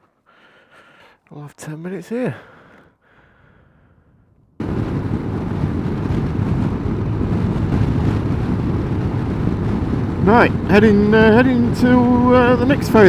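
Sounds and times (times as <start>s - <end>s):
wind on microphone: 4.0s - 13.0s
motorcycle engine running: 4.6s - 13.0s.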